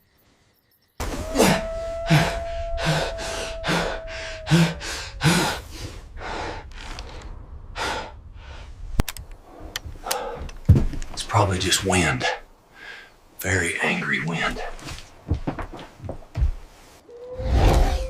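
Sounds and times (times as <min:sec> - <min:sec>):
steady high tone: 0:01.1 - 0:06.3
heavy gasping breaths: 0:02.8 - 0:08.7, 0:09.6 - 0:10.6.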